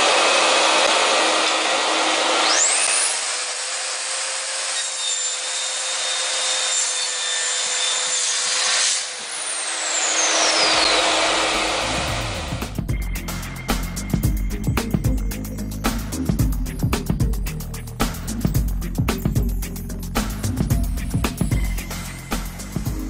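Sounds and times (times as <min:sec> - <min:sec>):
mitre saw cutting: 0:00.0 - 0:12.8
high saw whine: 0:00.0 - 0:23.0.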